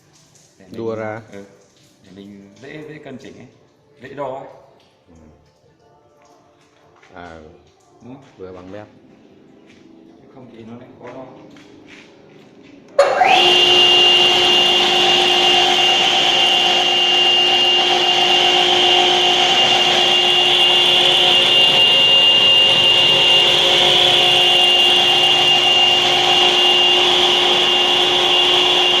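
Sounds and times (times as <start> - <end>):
stone saw whining: 13.0 - 29.0.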